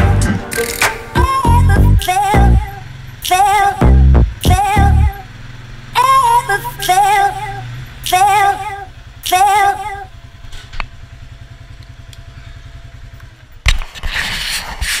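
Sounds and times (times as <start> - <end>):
wavering singing: 0.0 - 5.2, 6.0 - 10.2
atv engine idling: 0.0 - 13.7
loud rough engine rumble: 0.0 - 13.7.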